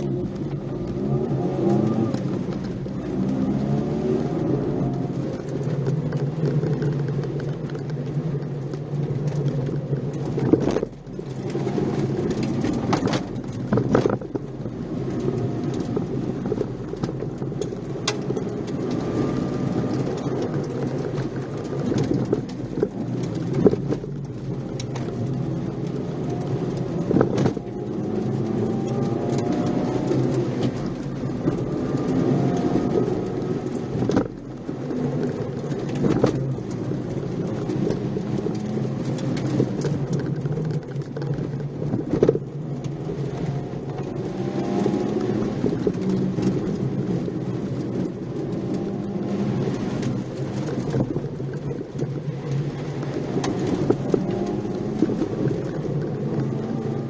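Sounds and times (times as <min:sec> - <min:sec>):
car engine revving under load: 0:00.0 - 0:57.0.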